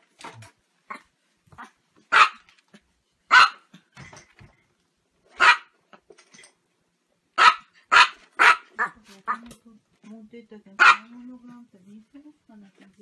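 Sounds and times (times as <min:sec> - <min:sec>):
small dog yapping: 0:01.6 - 0:02.4, 0:03.3 - 0:03.6, 0:05.4 - 0:05.7, 0:07.4 - 0:09.0.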